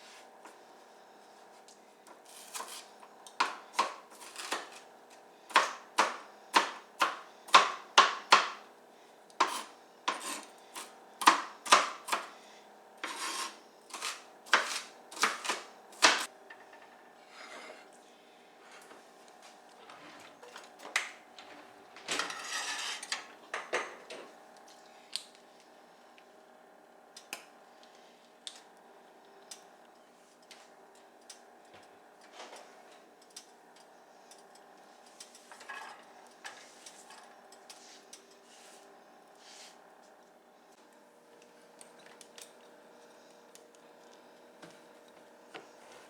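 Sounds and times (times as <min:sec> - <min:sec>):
utensils and dishes clattering: 0:21.5 - 0:24.3.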